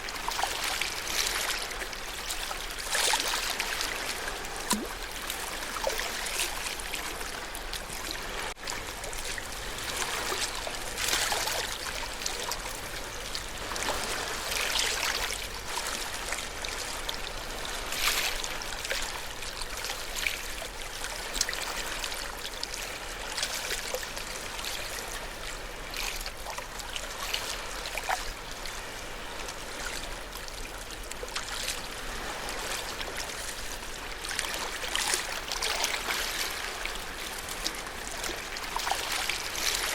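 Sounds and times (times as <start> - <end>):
ocean waves washing on shore: 0.0 - 39.9
water splashing: 0.0 - 39.9.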